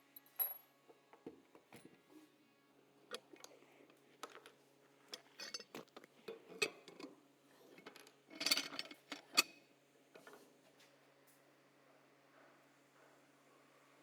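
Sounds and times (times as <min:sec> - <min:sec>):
tools handled on a workbench: 0:03.1 - 0:09.6.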